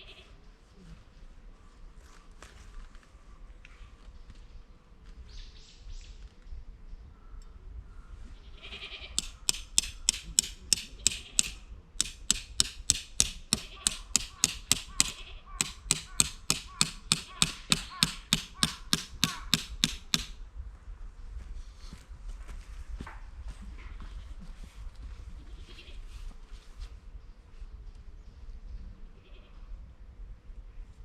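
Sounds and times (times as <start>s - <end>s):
hammer striking tent pegs: 9.2s - 20.4s.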